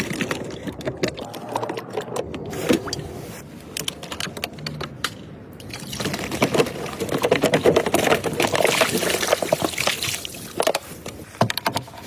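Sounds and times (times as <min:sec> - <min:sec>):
tools clicking and clattering: 0:03.7 - 0:08.9.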